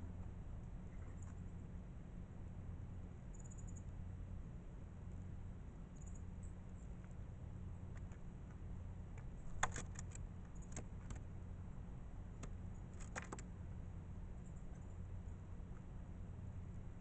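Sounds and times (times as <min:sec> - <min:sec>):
sharp little clicks and taps: 0:07.9 - 0:11.3, 0:12.3 - 0:13.5.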